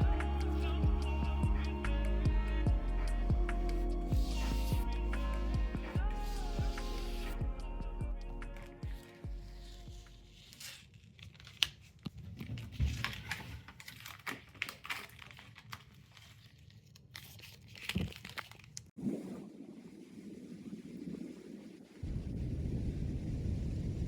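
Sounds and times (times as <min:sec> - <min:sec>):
steady low rumble: 0:00.0 - 0:10.3, 0:20.0 - 0:24.0
crinkling and crackling: 0:08.4 - 0:19.0.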